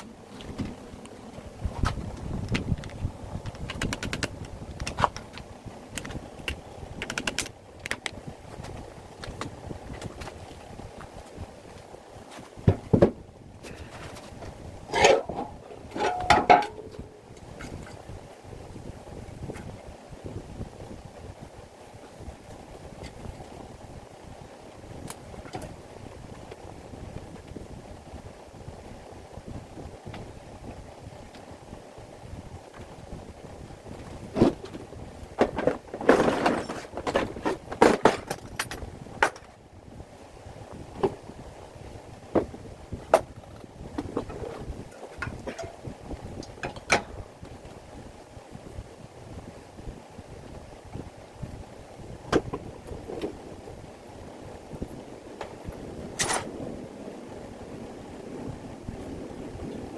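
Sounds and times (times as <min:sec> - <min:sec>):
objects clattering: 0:12.3 - 0:18.0, 0:34.0 - 0:39.6
hard objects knocking: 0:14.9 - 0:17.1
rattling: 0:14.9 - 0:17.1.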